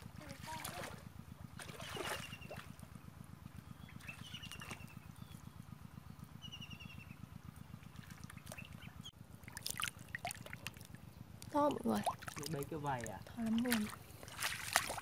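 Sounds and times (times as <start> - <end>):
faint water splashes: 0.0 - 3.0, 3.9 - 5.0, 7.8 - 15.0
small bird trilling: 1.8 - 2.6, 3.8 - 5.3.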